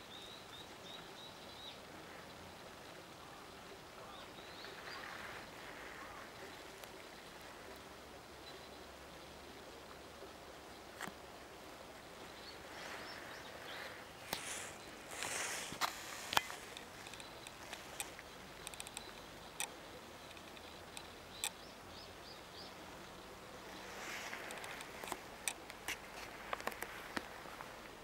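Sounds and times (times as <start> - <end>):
rustling: 4.6 - 7.8, 12.5 - 21.0, 23.6 - 28.0
sharp clicks: 15.2 - 21.6.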